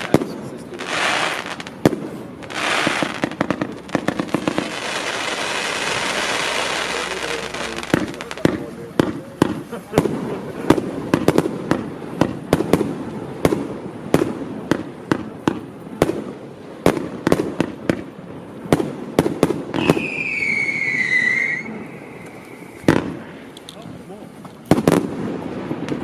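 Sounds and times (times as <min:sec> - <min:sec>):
fireworks banging: 0:00.0 - 0:26.0
firework whistle: 0:19.7 - 0:23.3.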